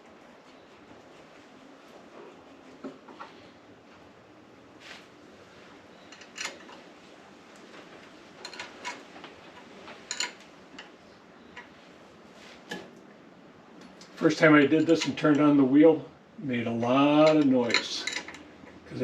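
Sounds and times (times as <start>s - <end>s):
metal parts clicking and tapping: 6.0s - 6.8s, 8.4s - 11.0s, 17.2s - 18.8s.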